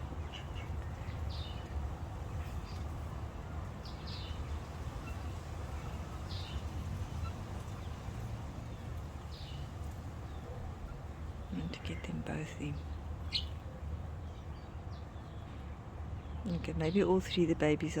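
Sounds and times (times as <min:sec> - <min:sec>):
bird alarm calls: 0:12.8 - 0:13.6.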